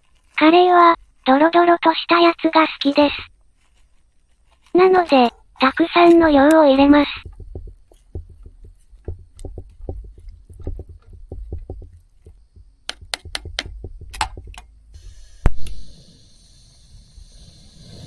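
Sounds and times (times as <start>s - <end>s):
faint steady hiss: 0.0s - 18.0s
clicks and knocks of food packaging: 5.3s - 14.7s.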